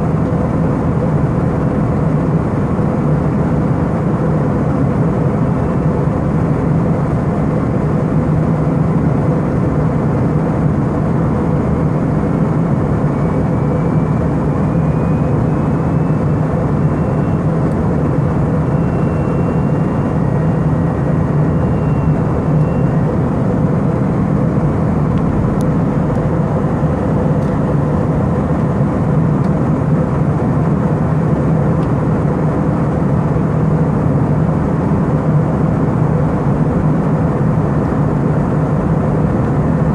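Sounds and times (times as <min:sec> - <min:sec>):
air rushing in cabin: 0:00.0 - 0:39.9
airliner engines droning: 0:00.0 - 0:39.9
faint high whine: 0:12.6 - 0:23.6.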